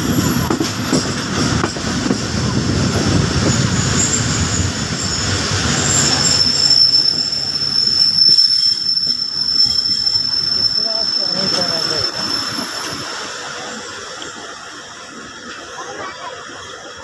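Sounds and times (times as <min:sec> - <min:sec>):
train wheels rumbling on track: 0:00.0 - 0:17.0
high wheel squeal: 0:03.4 - 0:14.0.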